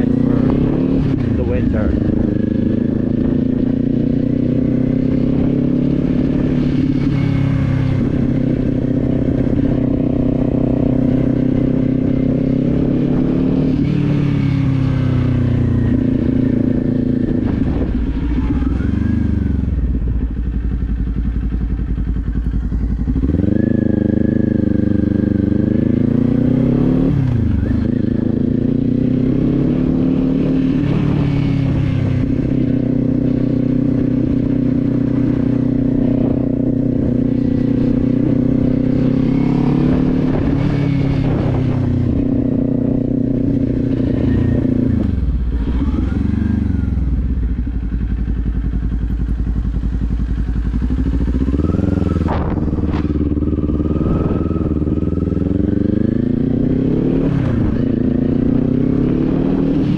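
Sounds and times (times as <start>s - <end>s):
motorcycle engine running: 0.0s - 59.9s
wind buffeting microphone: 14.7s - 18.7s, 30.9s - 48.4s, 51.0s - 59.7s.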